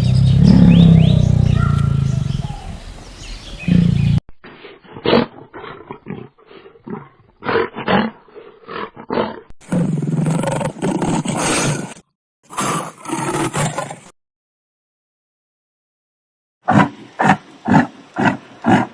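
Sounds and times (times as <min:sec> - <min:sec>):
animal long continuous call: 0:00.0 - 0:13.8, 0:16.7 - 0:18.9
animal deep grunts: 0:00.3 - 0:02.4, 0:03.6 - 0:14.1, 0:16.7 - 0:18.9.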